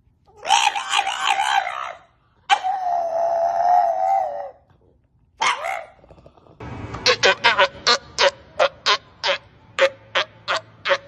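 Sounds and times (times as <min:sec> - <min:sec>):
animal high wavering cries: 0:00.3 - 0:04.7.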